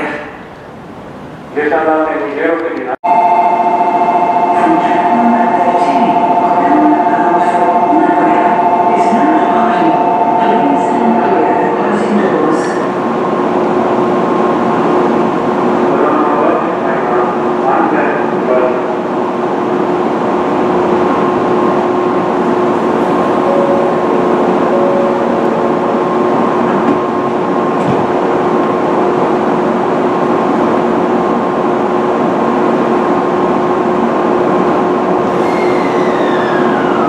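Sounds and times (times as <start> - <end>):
train equipment humming: 18.6 - 37.0
short falling whine: 35.3 - 37.0.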